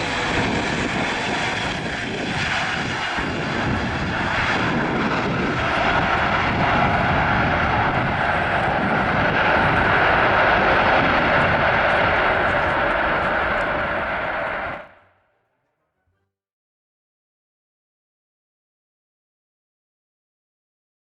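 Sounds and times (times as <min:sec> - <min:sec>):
jet engine roar of landing plane: 0:00.0 - 0:15.0.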